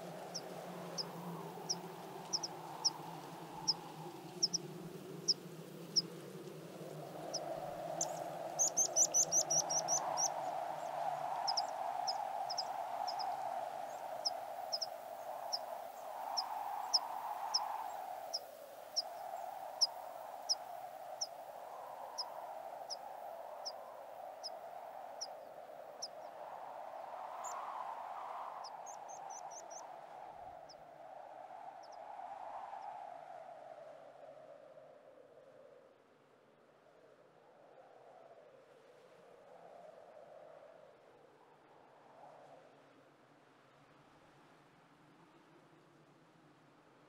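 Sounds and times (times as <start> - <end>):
small bird calling: 1.7 - 3.0, 8.0 - 15.7
bird trilling: 8.0 - 10.3.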